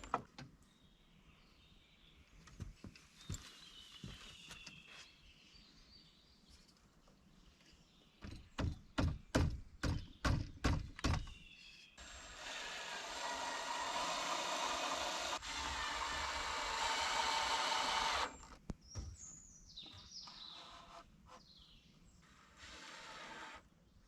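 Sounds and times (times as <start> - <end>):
faint bird chirps: 18.4 - 22.8.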